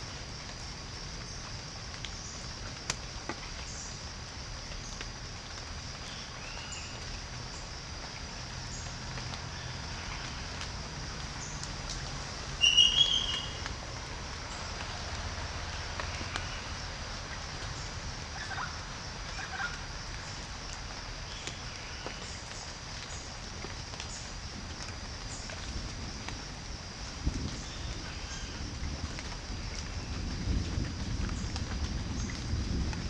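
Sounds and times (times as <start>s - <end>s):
steady hiss: 0.0s - 33.0s
bird calls: 12.6s - 13.7s.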